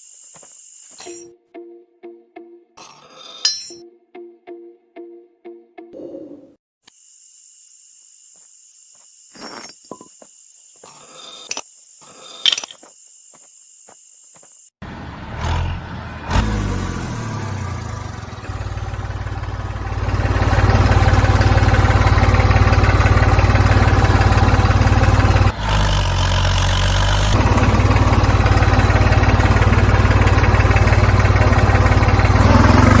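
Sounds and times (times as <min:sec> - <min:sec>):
engine running: 0:14.8 - 0:33.0.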